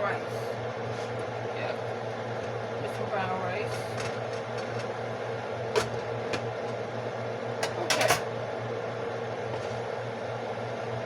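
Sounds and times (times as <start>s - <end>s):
kitchen fan humming: 0.0s - 11.0s.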